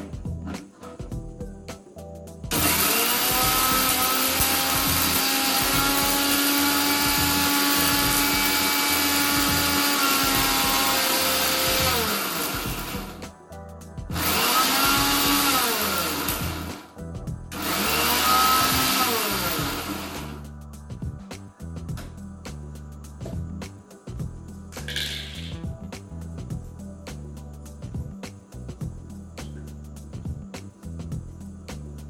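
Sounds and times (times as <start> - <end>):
mixer grinder motor running: 2.5 - 13.2, 14.1 - 16.9, 17.5 - 20.4.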